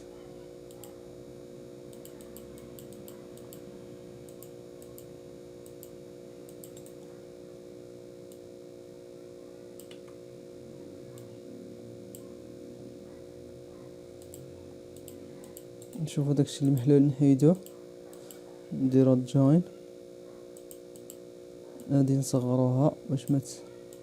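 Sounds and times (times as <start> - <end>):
low electrical hum: 0.0 - 24.0
computer mouse clicking: 1.9 - 3.6, 4.2 - 7.1, 9.8 - 10.2, 14.2 - 16.9, 17.6 - 18.4, 20.6 - 21.2.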